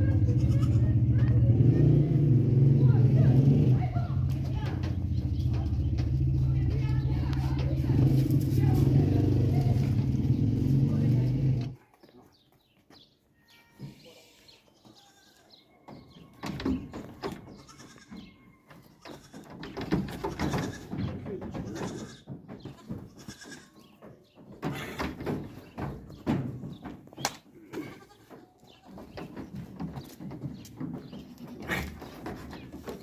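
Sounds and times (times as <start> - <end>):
sheep bleating: 0.0 - 1.0, 13.4 - 15.5, 17.6 - 18.3, 21.6 - 23.9, 27.6 - 28.4.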